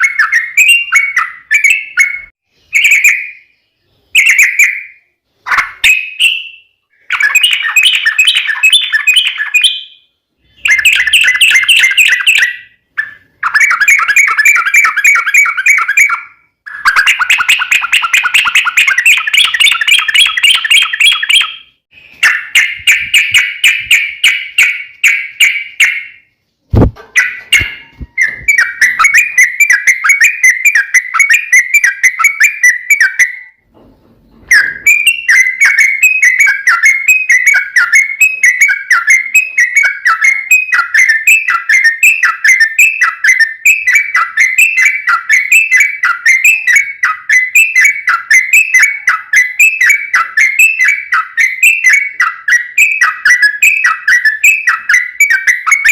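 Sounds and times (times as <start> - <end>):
bird singing whistled notes: 0.0 - 33.6, 34.4 - 55.9
thump: 26.7 - 27.2, 33.7 - 34.8.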